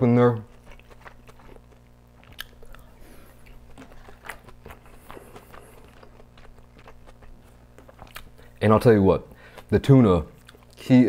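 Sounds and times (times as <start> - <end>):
person chewing: 0.0 - 10.9
mouth clicks: 2.2 - 2.9.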